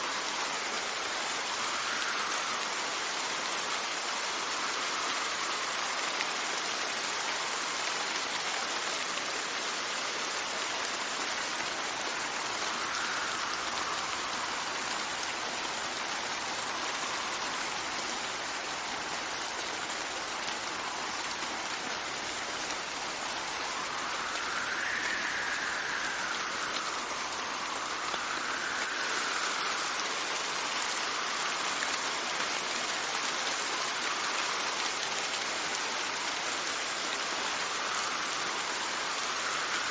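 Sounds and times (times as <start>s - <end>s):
steady rain falling: 0.0s - 39.9s
wind gusting whistles: 11.1s - 32.0s, 37.6s - 39.9s.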